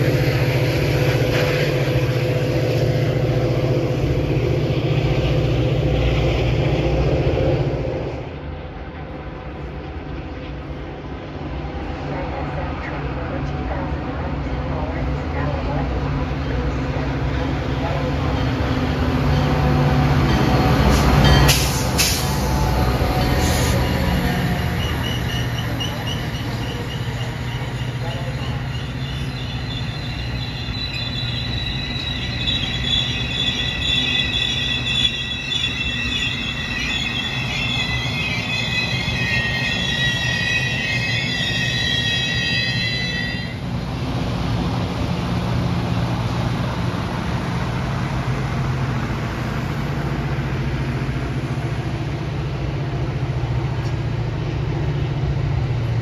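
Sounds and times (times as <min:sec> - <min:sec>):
diesel locomotive rumbling: 0:00.0 - 0:56.0
brakes squealing: 0:16.4 - 0:43.9.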